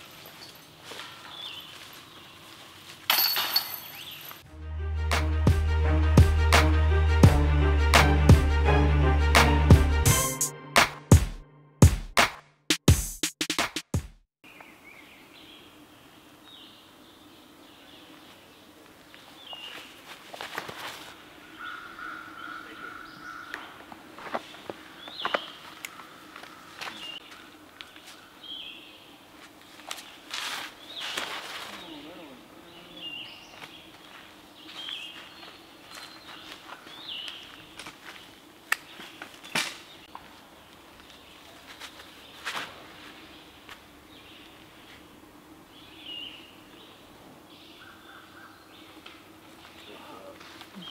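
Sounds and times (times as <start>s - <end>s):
birds chirping: 0.0s - 2.8s, 3.6s - 4.4s, 21.2s - 50.9s
soft rustles: 19.0s - 21.2s, 29.3s - 32.0s.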